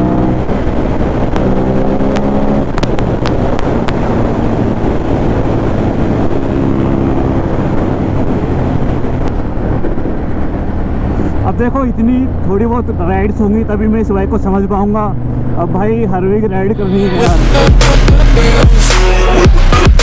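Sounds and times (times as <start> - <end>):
wind rush on microphone: 0.0 - 13.4
sharp clicks: 2.1 - 4.0.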